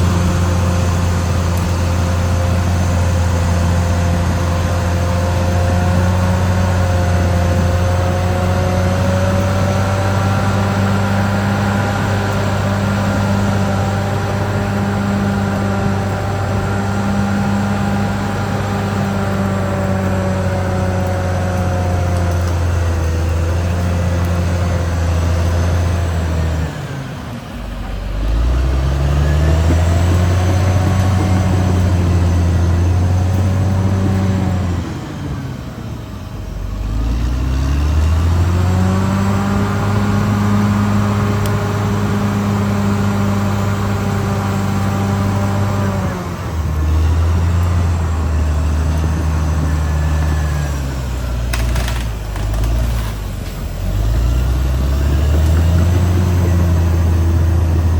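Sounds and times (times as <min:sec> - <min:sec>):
bulldozer diesel engine under load: 0:00.0 - 0:57.9.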